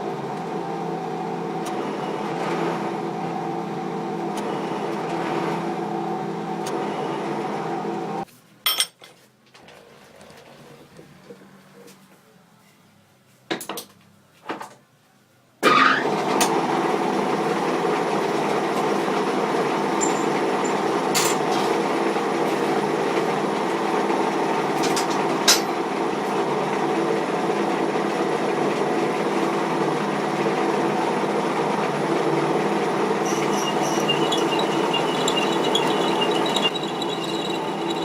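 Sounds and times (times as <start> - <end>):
metal lathe droning: 18.2 - 24.8, 31.5 - 38.0.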